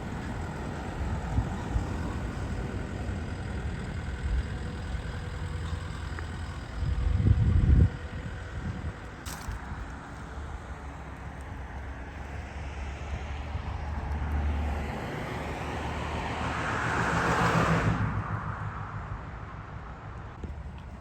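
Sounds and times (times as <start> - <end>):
engine hum: 0.0 - 21.0
vehicle passing by: 10.9 - 20.1.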